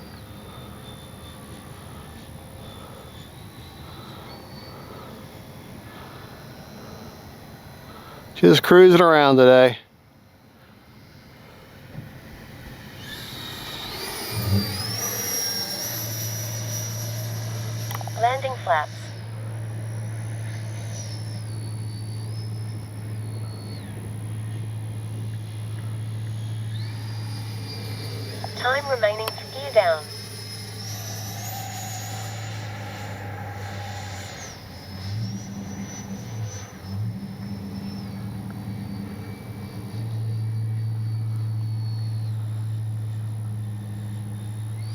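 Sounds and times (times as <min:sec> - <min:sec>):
ducted fan jet whine: 0:00.0 - 0:44.9
steady low hum: 0:00.0 - 0:44.9.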